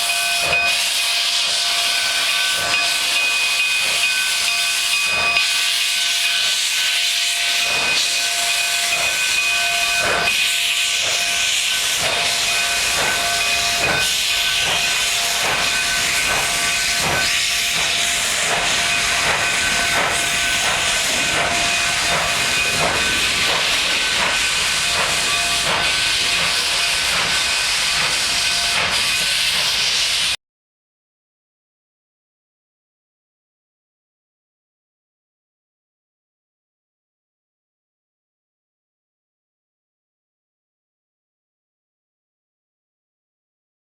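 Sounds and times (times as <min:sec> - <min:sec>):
steam locomotive hissing: 0:00.0 - 0:30.4.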